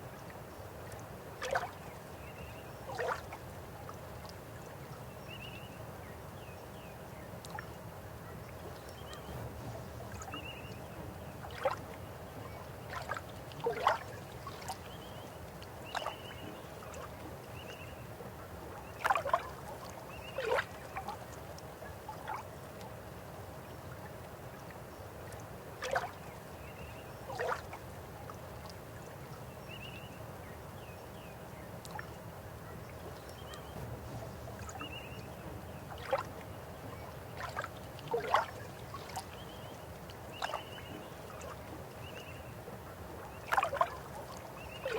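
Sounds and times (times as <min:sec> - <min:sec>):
river water running: 0:00.0 - 0:44.9
water splashes: 0:00.1 - 0:04.9, 0:08.5 - 0:29.2, 0:31.8 - 0:44.9.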